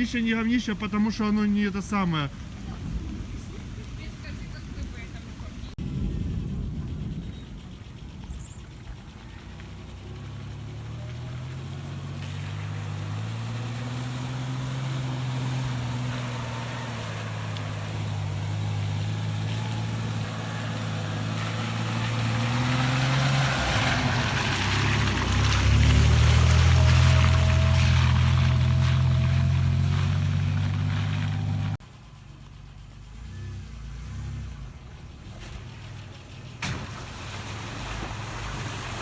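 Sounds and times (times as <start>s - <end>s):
tyres hissing on wet road: 0.0s - 39.0s
car engine pulling under load: 5.8s - 39.0s.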